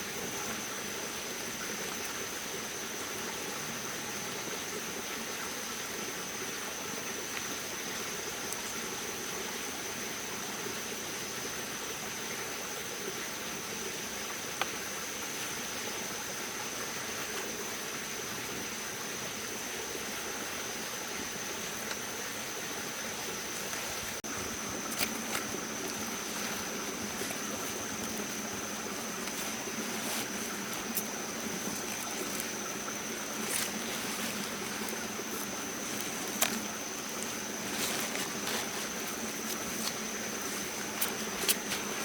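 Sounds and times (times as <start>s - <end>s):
water rushing: 14.0s - 42.0s.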